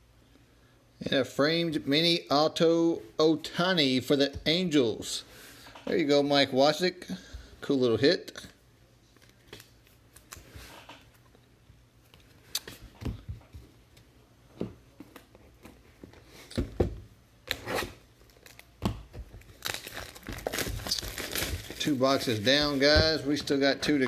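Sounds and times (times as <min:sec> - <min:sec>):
wrappers tearing and crinkling: 0:17.5 - 0:18.8, 0:19.4 - 0:22.9
cards rustling: 0:18.2 - 0:24.0.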